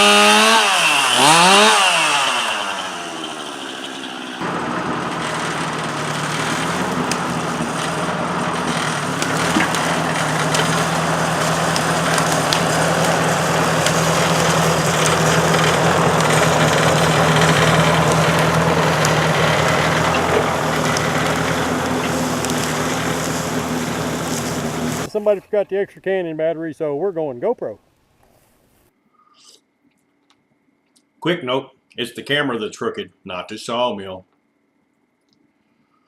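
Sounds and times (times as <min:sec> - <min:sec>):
engine running steadily: 0:00.0 - 0:25.1.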